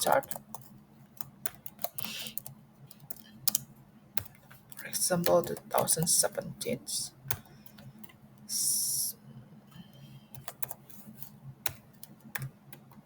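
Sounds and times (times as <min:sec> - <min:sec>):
faint steady low hum: 0:00.0 - 0:13.0
computer keyboard keystrokes: 0:00.2 - 0:03.6, 0:10.4 - 0:10.8, 0:11.6 - 0:13.0.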